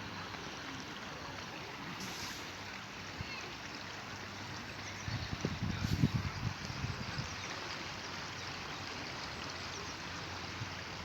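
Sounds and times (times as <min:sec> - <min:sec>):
running water: 0:00.0 - 0:11.0.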